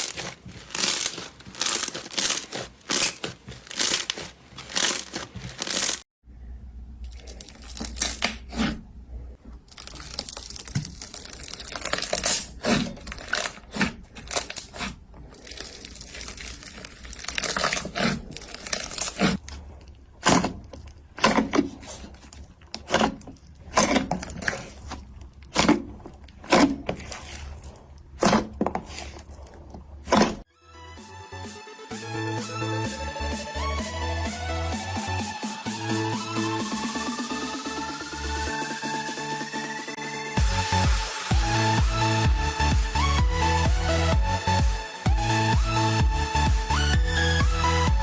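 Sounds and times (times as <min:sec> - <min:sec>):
slime popping and crackling: 0:00.0 - 0:06.0, 0:09.6 - 0:29.2.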